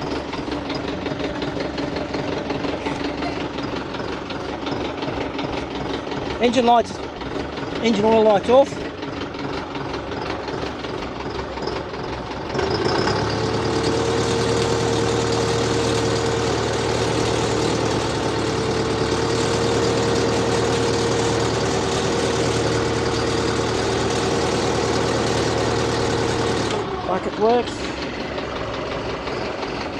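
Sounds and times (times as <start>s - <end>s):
steady whine: 0.0s - 21.6s
tractor diesel engine running: 0.0s - 29.9s.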